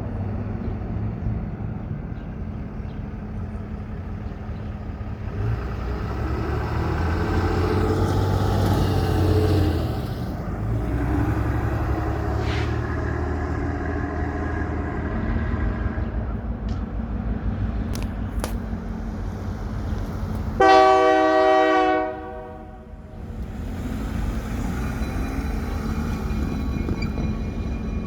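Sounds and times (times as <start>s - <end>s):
freight train rumbling past: 0.0s - 28.0s
train air horn blast: 20.6s - 23.0s.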